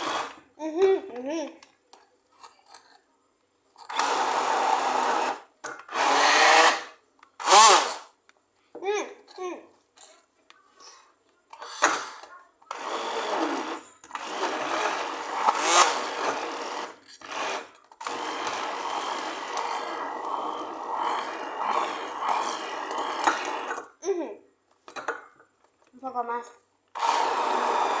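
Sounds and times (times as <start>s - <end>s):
electric blender running: 0.0s - 0.4s, 3.9s - 8.1s, 12.7s - 23.8s, 26.9s - 28.0s.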